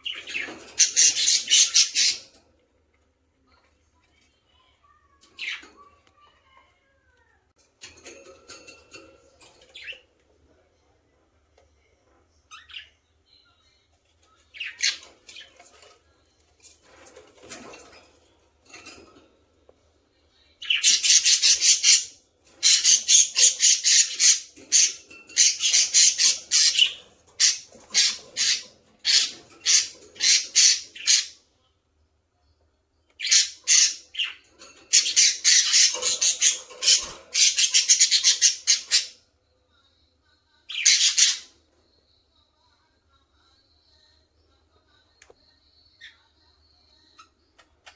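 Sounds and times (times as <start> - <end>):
baby budgerigars squawking: 0.0 - 2.4, 20.6 - 31.4, 33.2 - 39.2, 40.7 - 41.5.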